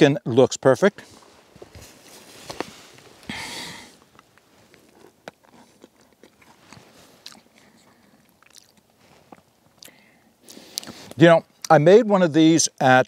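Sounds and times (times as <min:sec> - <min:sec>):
person chewing: 0:04.0 - 0:11.7.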